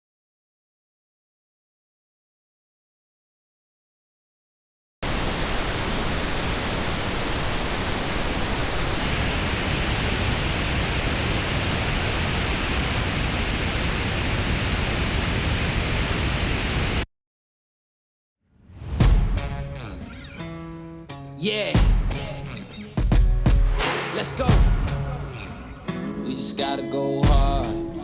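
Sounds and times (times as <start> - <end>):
pink noise test signal: 5.0 - 17.1.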